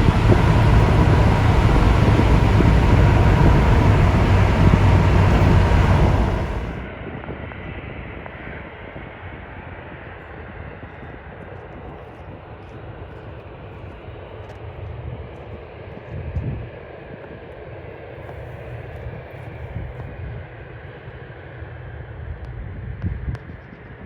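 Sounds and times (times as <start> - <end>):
jet engines running: 0.0 - 6.9
low rumble: 0.0 - 6.9.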